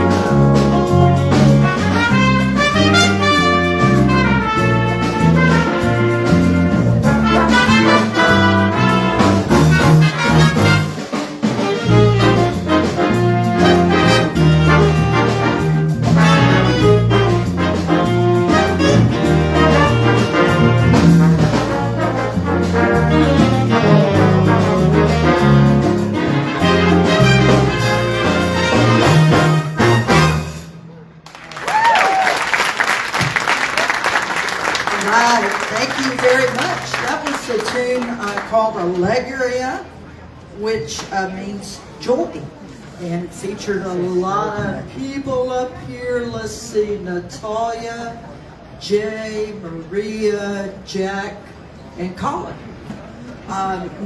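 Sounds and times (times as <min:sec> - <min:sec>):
moving bass line: 0:00.0 - 0:11.0, 0:11.8 - 0:30.4
trumpets and trombones: 0:00.0 - 0:30.9
jazz big band playing: 0:00.0 - 0:39.1.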